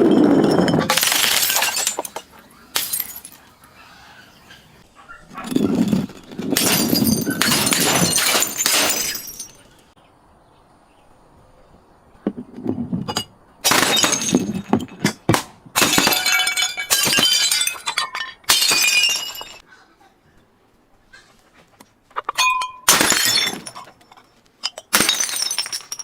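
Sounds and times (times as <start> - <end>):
glass shattering: 0.0 - 3.5, 5.5 - 9.9, 13.6 - 15.2, 15.8 - 19.6, 22.4 - 26.0.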